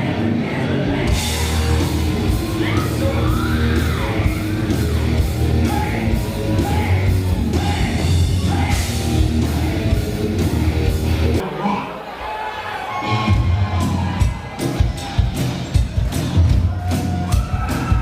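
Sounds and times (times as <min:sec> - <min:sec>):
person singing: 0:00.0 - 0:10.6
loud drums: 0:00.0 - 0:11.4, 0:13.1 - 0:18.0
rock band playing live: 0:00.0 - 0:11.5, 0:13.0 - 0:18.0.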